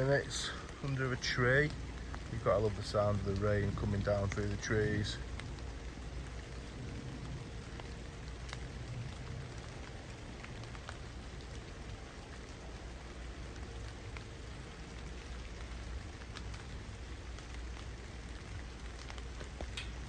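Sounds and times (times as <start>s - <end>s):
heavy drops ticking: 0.0s - 6.8s, 14.4s - 20.0s
rain falling through tree: 0.0s - 20.0s.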